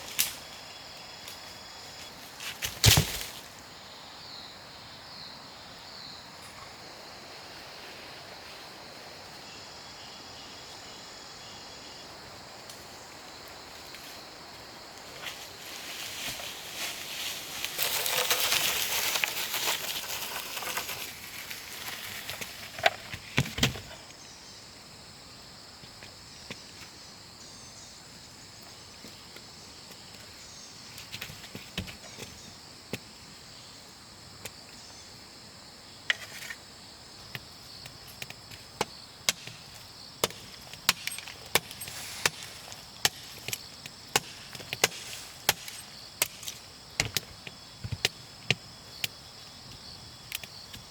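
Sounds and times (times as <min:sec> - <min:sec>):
high insect drone: 0:00.0 - 0:50.9
rustling: 0:15.1 - 0:23.9
axe chopping wood: 0:38.5 - 0:48.6.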